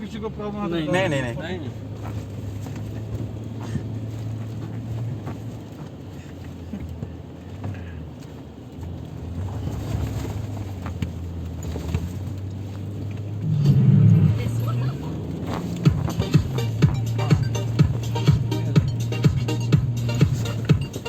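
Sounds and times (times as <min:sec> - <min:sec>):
faint rattles and knocks: 0:00.0 - 0:21.0
vehicle engine running: 0:00.0 - 0:21.0.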